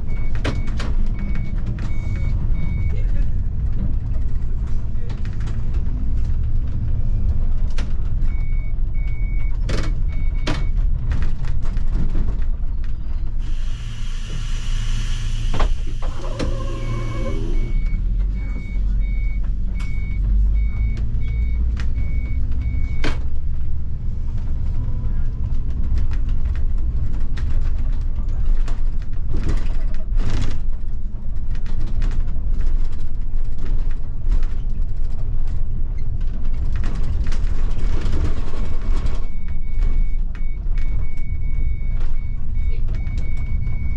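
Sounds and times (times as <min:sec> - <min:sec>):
bus engine and road rumble: 0:00.0 - 0:43.9
compressed air hiss: 0:13.4 - 0:16.2.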